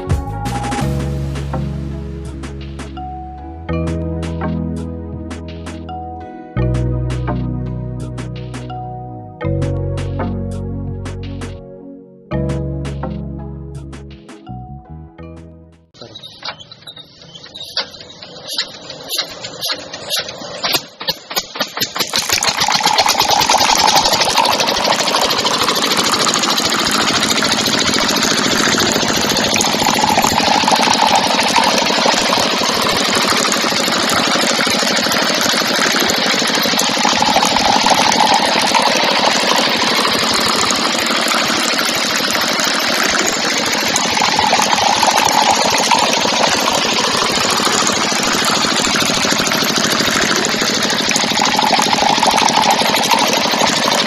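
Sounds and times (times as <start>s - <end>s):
small motor rattling: 16.6s - 54.0s.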